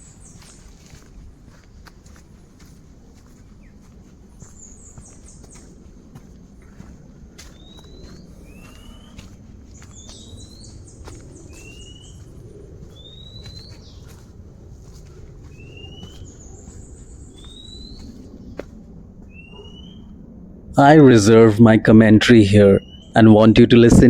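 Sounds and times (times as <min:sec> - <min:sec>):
birds whistling: 0:00.0 - 0:20.2, 0:22.8 - 0:23.2
bird trilling call: 0:07.5 - 0:12.3, 0:12.9 - 0:14.2, 0:15.5 - 0:18.2, 0:19.3 - 0:20.1, 0:22.8 - 0:23.2.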